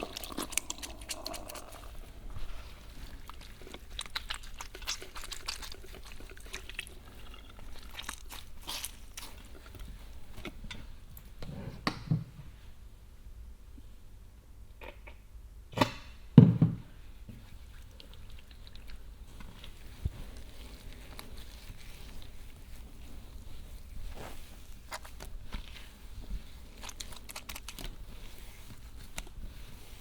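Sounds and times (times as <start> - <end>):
wet hair squishing during shampoo: 0.0 - 10.6, 17.5 - 30.0.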